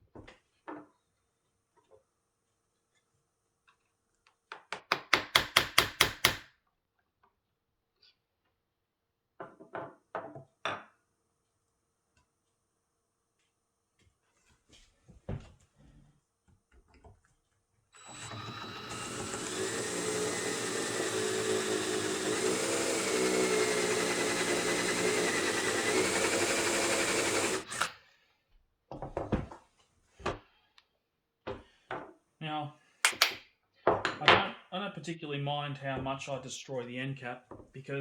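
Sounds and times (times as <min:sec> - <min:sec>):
electric drill whining: 0:18.0 - 0:28.0.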